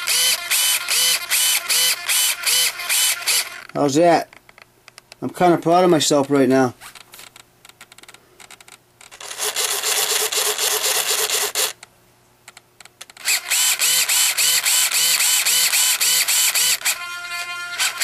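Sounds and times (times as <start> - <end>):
servo motor whirring: 0.0 - 3.7, 9.2 - 11.8, 13.2 - 18.0.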